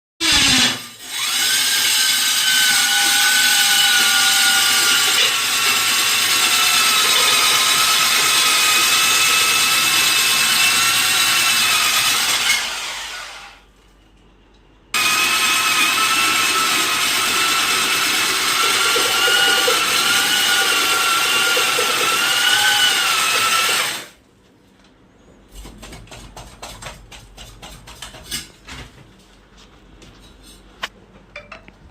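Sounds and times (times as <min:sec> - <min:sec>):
power drill motor whining: 0:00.2 - 0:13.6, 0:15.0 - 0:24.1.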